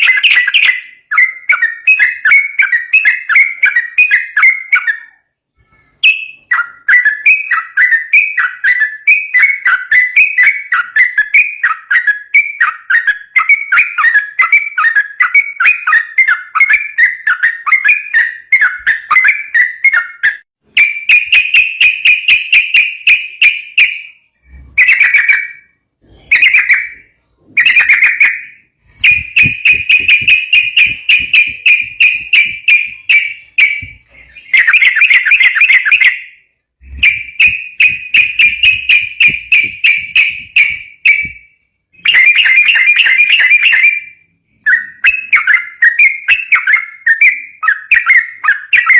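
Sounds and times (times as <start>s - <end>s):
bird singing chattering notes: 6.0s - 44.1s.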